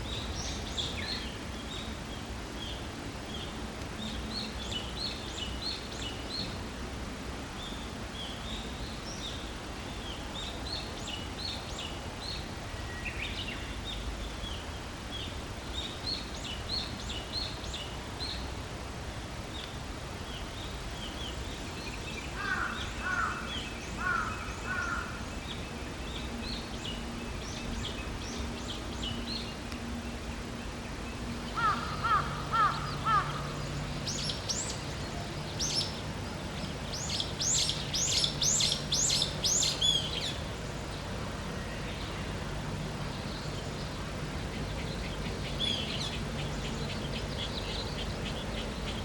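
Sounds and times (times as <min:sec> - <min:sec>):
low repeated bird calls: 0:19.6 - 0:49.0
birds chirping and trilling: 0:21.0 - 0:29.6, 0:31.2 - 0:41.0.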